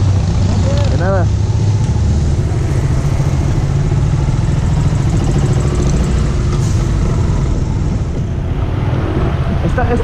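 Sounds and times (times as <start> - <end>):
motorcycle engine running: 0.0 - 6.4
road noise: 0.0 - 10.0.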